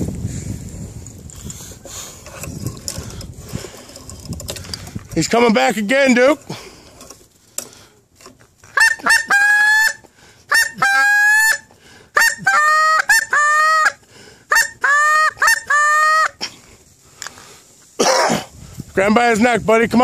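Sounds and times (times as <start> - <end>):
goose honking: 8.8 - 11.6, 12.2 - 16.4.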